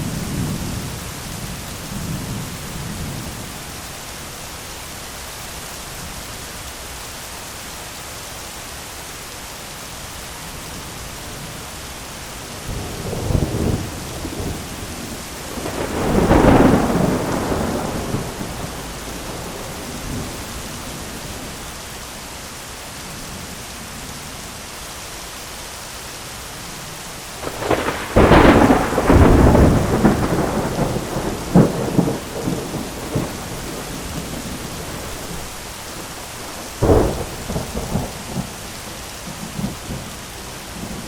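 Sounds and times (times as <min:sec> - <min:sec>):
heavy rain on an umbrella: 0:00.0 - 0:41.0
thunder rumbling and cracking: 0:12.7 - 0:21.4, 0:27.4 - 0:40.1.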